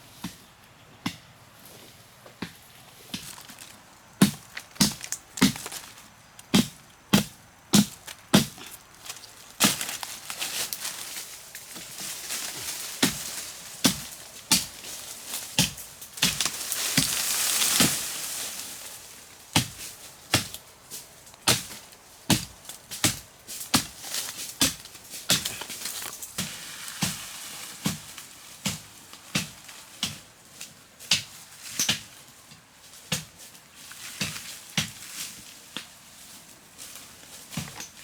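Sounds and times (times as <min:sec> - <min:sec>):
axe chopping wood: 0:02.4 - 0:08.7, 0:13.8 - 0:14.8, 0:19.6 - 0:20.6, 0:21.4 - 0:24.0, 0:24.6 - 0:26.5.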